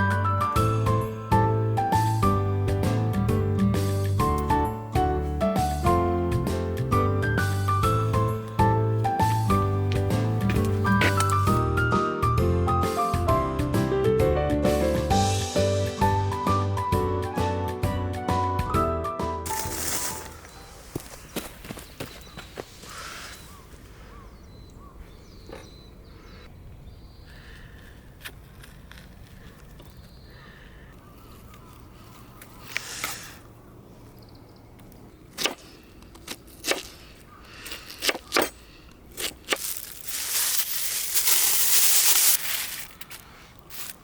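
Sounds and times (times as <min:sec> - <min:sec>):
loud rustling: 0:19.5 - 0:21.0, 0:39.2 - 0:44.0.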